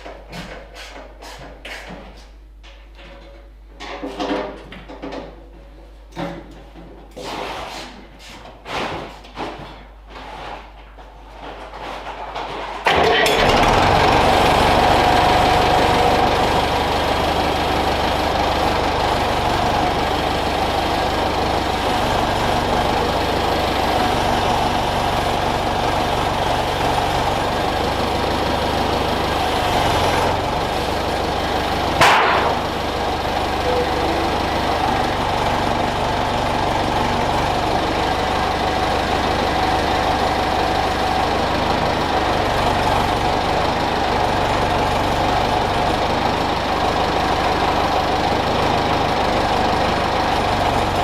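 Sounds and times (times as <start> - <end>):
tractor diesel engine idling: 12.9 - 51.0.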